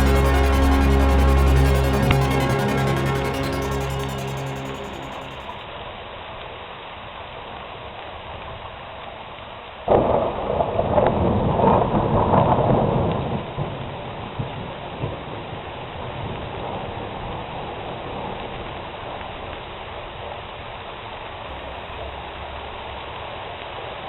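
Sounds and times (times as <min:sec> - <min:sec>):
steady rain: 0:05.7 - 0:24.0
thunder crack and rumble: 0:09.9 - 0:17.5.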